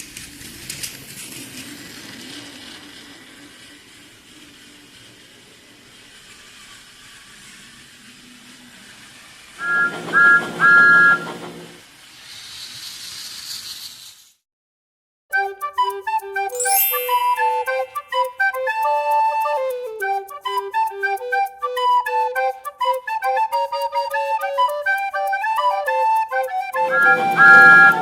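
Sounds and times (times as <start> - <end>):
steam hissing: 0.0 - 14.1
steam locomotive whistle: 9.6 - 11.8, 15.4 - 28.0.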